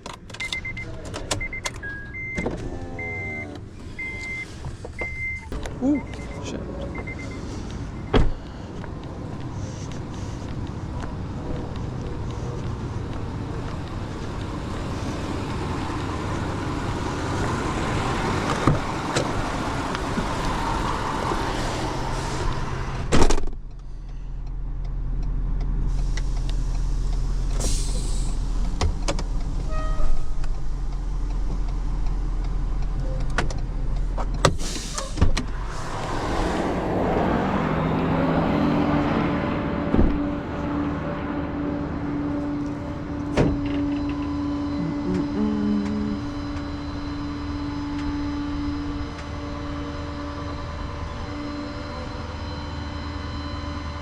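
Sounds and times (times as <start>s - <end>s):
road noise: 0.0s - 54.0s
vehicle engine running: 2.7s - 23.0s, 23.6s - 34.6s, 35.4s - 54.0s
deep low hum: 35.4s - 53.6s.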